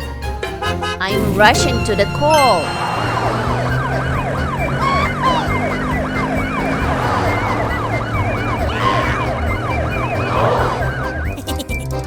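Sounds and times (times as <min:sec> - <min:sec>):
higher warbling tone: 0:00.8 - 0:05.7
yelp siren: 0:01.2 - 0:11.4.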